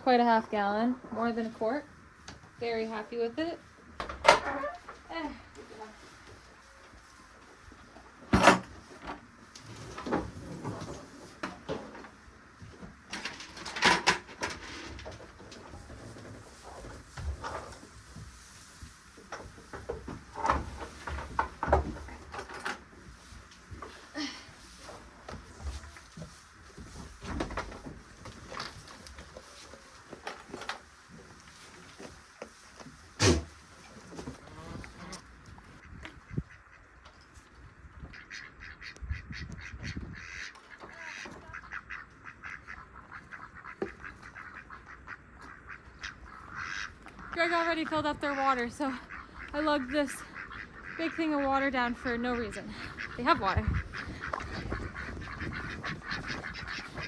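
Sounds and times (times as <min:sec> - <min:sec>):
low rumble from handling or wind: 0:32.9 - 0:40.5, 0:45.5 - 0:57.0
ducks quacking: 0:38.1 - 0:57.0.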